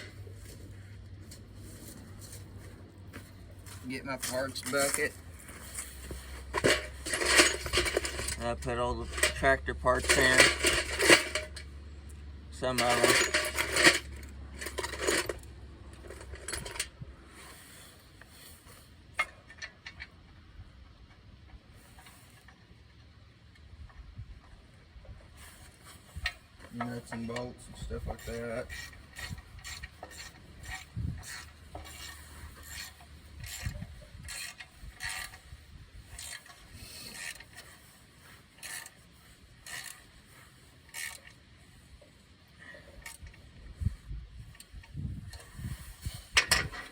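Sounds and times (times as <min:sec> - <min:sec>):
metal nuts and bolts rattling: 0:04.1 - 0:11.9, 0:12.6 - 0:17.0, 0:26.2 - 0:35.5, 0:44.4 - 0:46.9.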